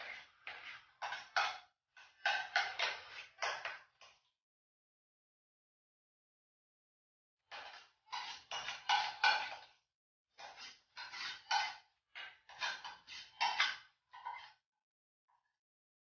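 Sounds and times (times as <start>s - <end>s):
spoon scraping and clinking a bowl: 7.5s - 9.7s, 10.4s - 14.6s.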